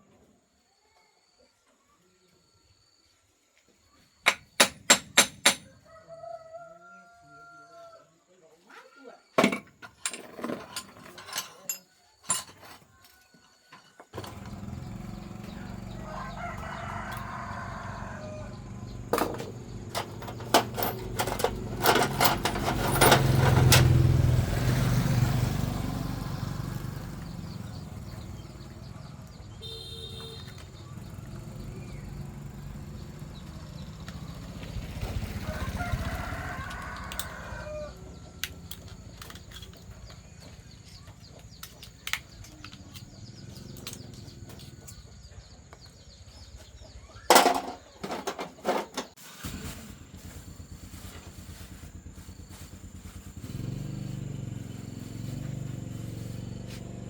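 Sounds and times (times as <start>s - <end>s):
rooster crowing: 5.6s - 8.2s, 14.4s - 24.4s, 35.0s - 38.5s
clicks and knocks: 19.2s - 24.0s, 47.3s - 49.2s.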